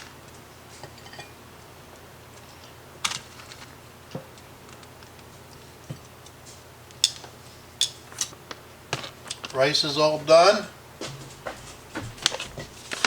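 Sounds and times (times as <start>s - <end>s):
kitchen clicks and knocks: 11.0s - 13.0s.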